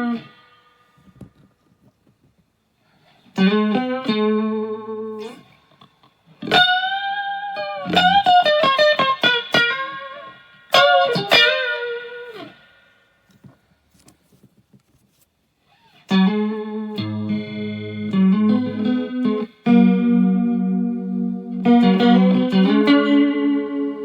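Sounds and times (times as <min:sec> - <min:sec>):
electric guitar lead phrases: 0:00.0 - 0:00.6, 0:03.4 - 0:05.5, 0:06.4 - 0:12.8, 0:16.1 - 0:24.0.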